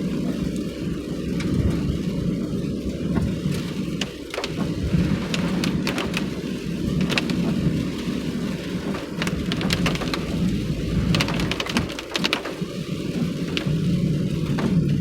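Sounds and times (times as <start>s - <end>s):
car driving on wet road: 0.0s - 15.0s
rain tapping on car: 0.0s - 15.0s.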